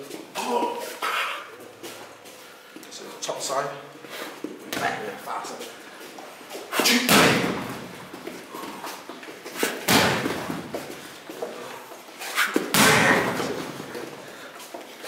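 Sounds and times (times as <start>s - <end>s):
heavy hits on training dummy: 6.9s - 7.9s, 9.9s - 10.8s, 12.7s - 13.8s.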